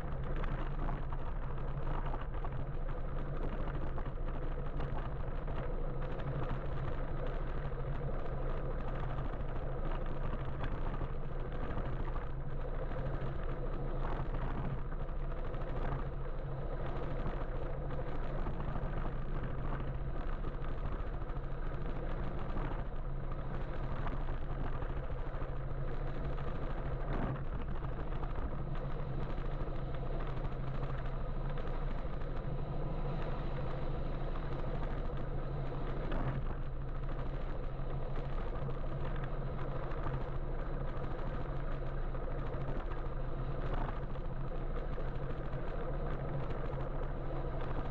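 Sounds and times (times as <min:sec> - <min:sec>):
electric motorbike hum: 0:00.0 - 0:47.9
road and traffic noise: 0:11.8 - 0:47.9.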